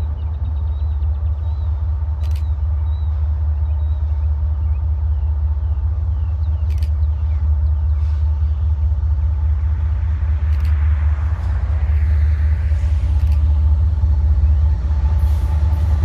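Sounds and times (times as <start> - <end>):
freight train rumbling past: 0.0 - 16.0
sharp clicks: 6.6 - 7.1, 10.5 - 10.8.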